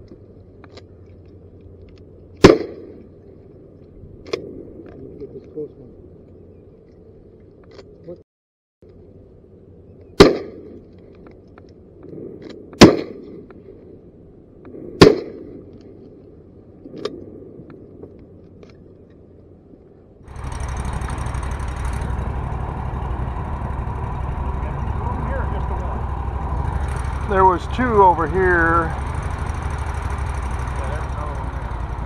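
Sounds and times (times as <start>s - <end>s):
shotgun shots: 2.4s - 3.0s, 10.2s - 10.7s, 12.8s - 13.3s, 15.0s - 15.5s
boat motor running: 20.3s - 32.0s.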